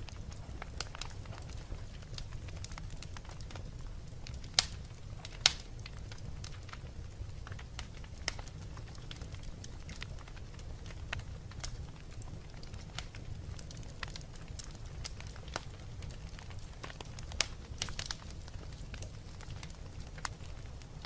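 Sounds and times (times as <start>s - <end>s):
wood fire crackling: 0.0s - 21.0s
sharp pops of fire: 4.2s - 20.8s.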